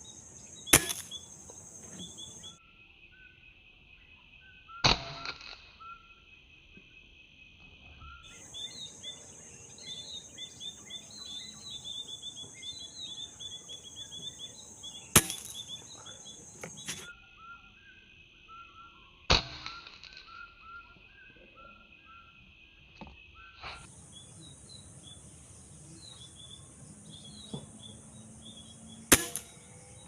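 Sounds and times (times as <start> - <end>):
high insect buzz: 0.0 - 2.6, 8.3 - 17.1, 23.8 - 30.0
small birds chirping: 0.0 - 2.6, 8.2 - 18.0, 23.2 - 30.0
air rifle shots: 0.7 - 1.2, 15.2 - 17.1, 29.1 - 29.8.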